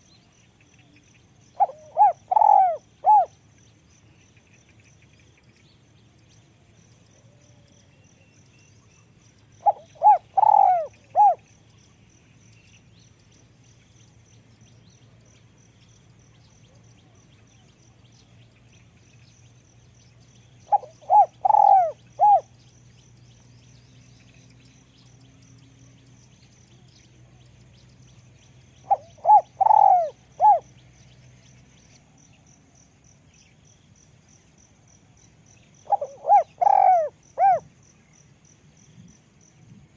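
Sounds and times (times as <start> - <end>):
dove cooing: 1.6 - 3.3, 9.6 - 11.4, 20.7 - 22.5, 28.8 - 30.7, 35.8 - 37.6.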